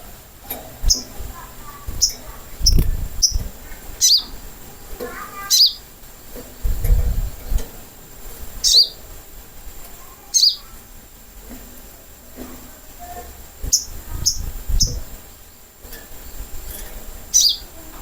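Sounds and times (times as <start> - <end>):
bird sharp high calls: 4.0 - 4.4, 5.4 - 5.8, 8.6 - 9.0, 10.2 - 10.7, 17.3 - 17.7.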